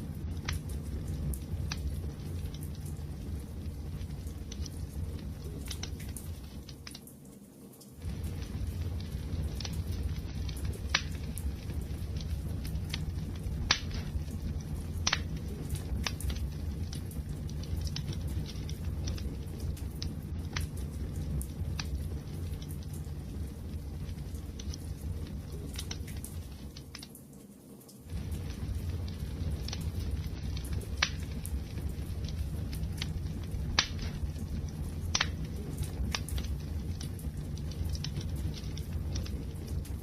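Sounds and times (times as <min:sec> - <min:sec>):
fire burning with low rumble: 0:00.0 - 0:40.0
fire crackles and pops: 0:00.0 - 0:40.0.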